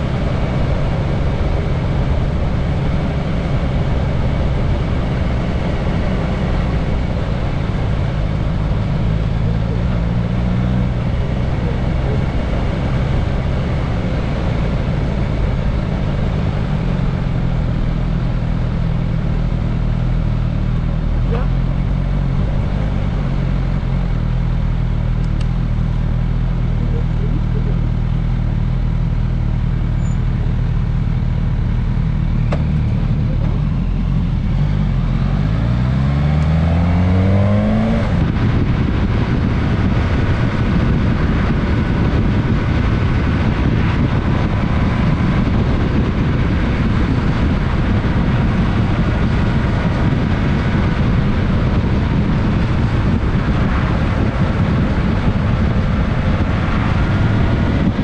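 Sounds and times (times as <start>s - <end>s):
motorcycle engine accelerating: 0.0s - 58.0s
wind rush over camera: 35.9s - 58.0s.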